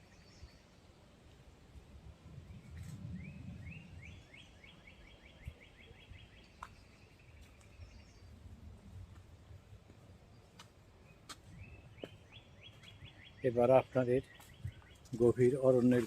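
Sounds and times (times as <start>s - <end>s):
low outdoor rumble: 0.0s - 16.0s
songbird trilling: 11.5s - 15.4s.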